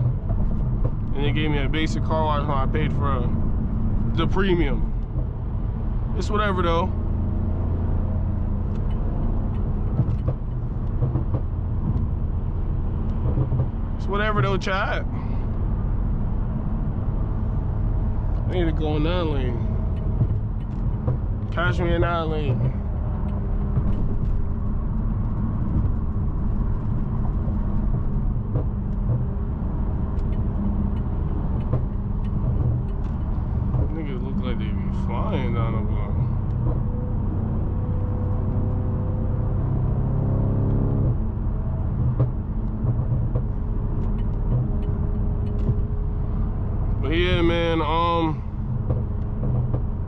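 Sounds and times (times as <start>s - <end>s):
car engine and road drone: 0.0s - 50.0s.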